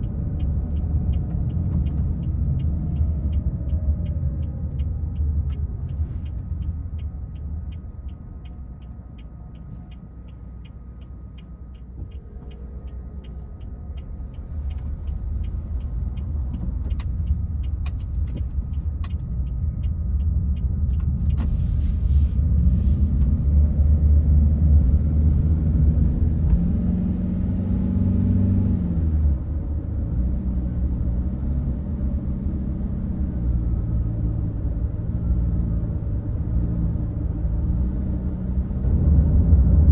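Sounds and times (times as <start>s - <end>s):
turn signal ticking: 0.0s - 23.4s
car engine and tyres rumbling: 0.0s - 39.9s.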